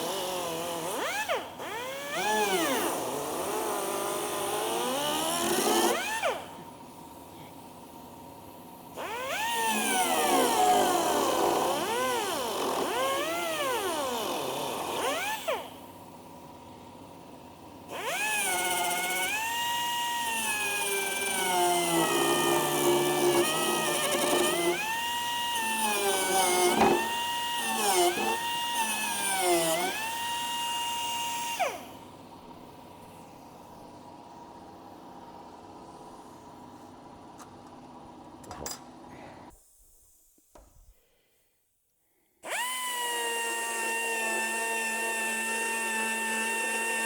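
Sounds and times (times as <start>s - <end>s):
die grinder cutting fibreglass: 9.0s - 15.5s, 18.0s - 31.8s, 42.5s - 47.0s.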